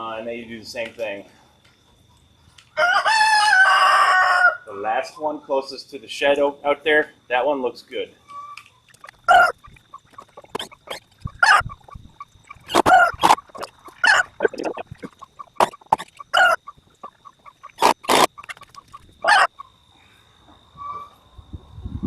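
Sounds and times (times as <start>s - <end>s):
chickens clucking and squawking: 8.2s - 21.2s.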